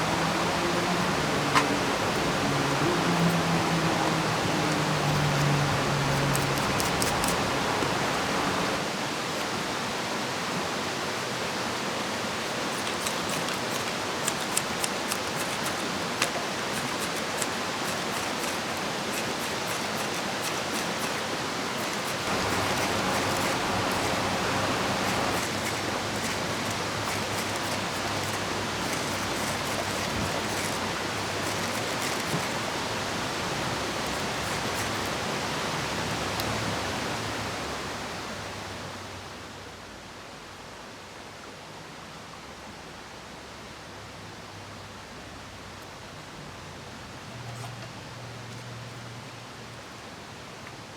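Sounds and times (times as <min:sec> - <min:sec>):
rain falling: 0:00.0 - 0:09.4, 0:11.6 - 0:39.0
river rushing: 0:00.0 - 0:39.6.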